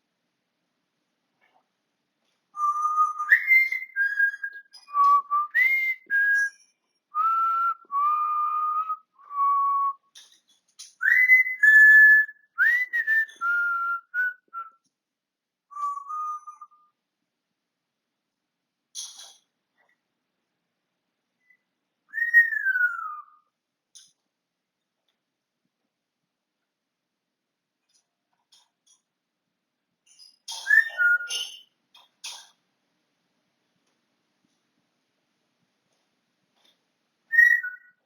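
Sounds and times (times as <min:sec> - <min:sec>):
parrot whistling: 0:21.4 - 0:23.4, 0:30.6 - 0:31.6, 0:37.3 - 0:38.0.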